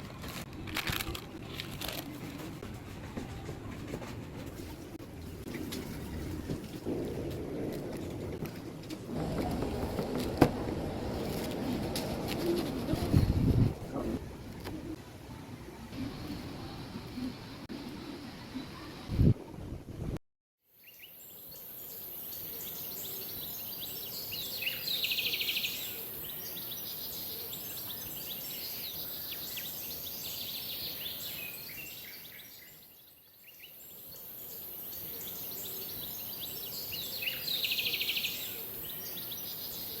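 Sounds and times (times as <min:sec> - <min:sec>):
birds chirping and trilling: 0:20.8 - 0:40.0.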